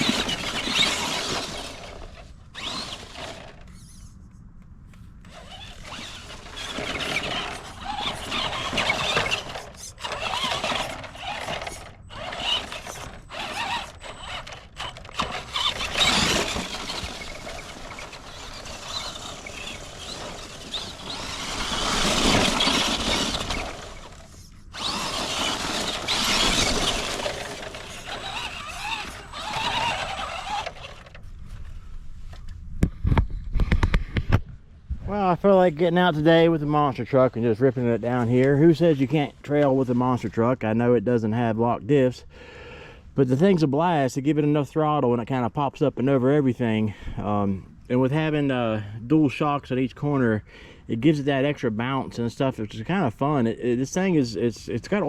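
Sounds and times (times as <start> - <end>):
electric toy truck motor whine: 0.0 - 4.2, 5.2 - 31.2.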